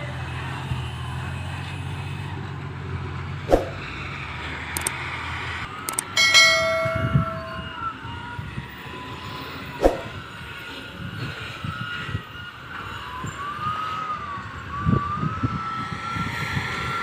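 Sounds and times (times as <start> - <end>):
sharp knock: 3.5 - 3.8
loud ringing tone: 5.9 - 8.1.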